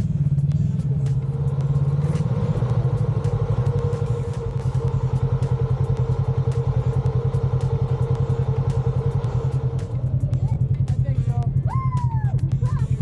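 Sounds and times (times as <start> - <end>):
engine pulsing exhaust: 0.0 - 13.0
light ticks and rattles: 0.0 - 13.0.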